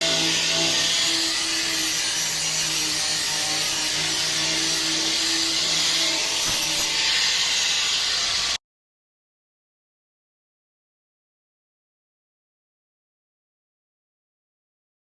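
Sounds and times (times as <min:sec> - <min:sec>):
loud machine hiss: 0:00.0 - 0:08.6.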